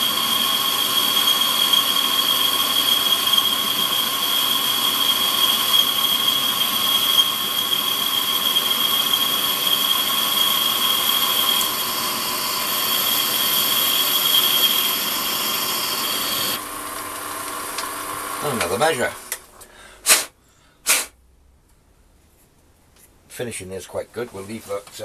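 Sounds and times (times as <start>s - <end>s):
high-pitched lathe whine: 0.0s - 19.3s
lathe running: 0.0s - 19.4s.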